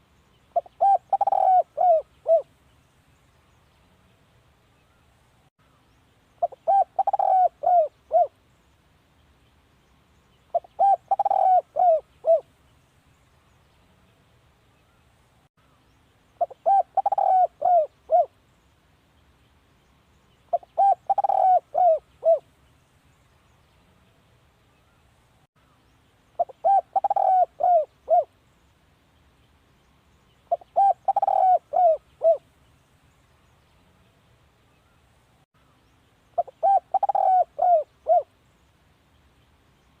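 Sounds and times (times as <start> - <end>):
dove cooing: 0.5 - 2.5, 6.4 - 8.4, 10.5 - 12.5, 16.4 - 18.4, 20.5 - 22.5, 26.4 - 28.3, 30.5 - 32.4, 36.4 - 38.3.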